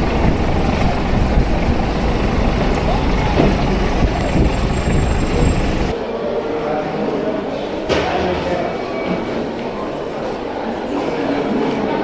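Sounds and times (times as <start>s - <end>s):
road traffic rumble: 0.0s - 6.0s.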